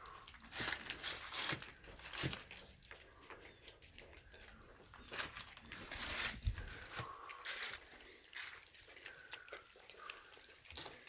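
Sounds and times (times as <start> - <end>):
footsteps crunching in snow: 5.1 - 8.6.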